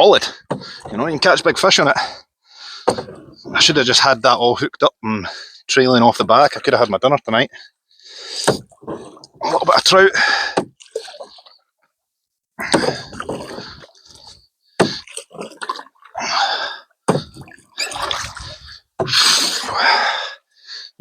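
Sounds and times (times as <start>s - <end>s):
canoe paddle strokes splashing: 0.2s - 2.1s, 2.8s - 3.9s, 8.3s - 11.6s, 12.6s - 19.8s.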